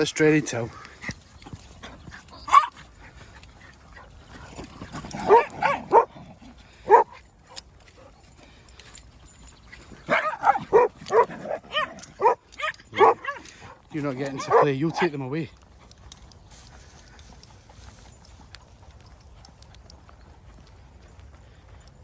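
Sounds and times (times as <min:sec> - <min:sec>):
dog barking and yipping: 0:02.4 - 0:02.9, 0:04.9 - 0:07.6, 0:10.0 - 0:15.2.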